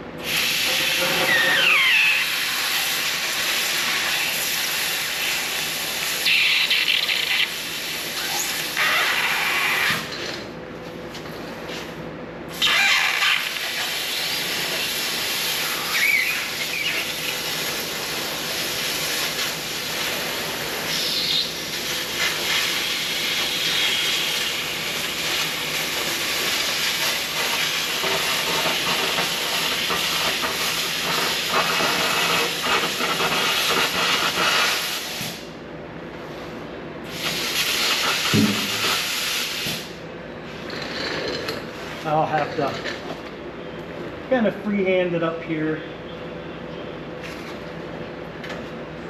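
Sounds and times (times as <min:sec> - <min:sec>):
laser cutter hissing and crackling: 0:00.2 - 0:10.1, 0:12.6 - 0:35.5, 0:37.1 - 0:39.9.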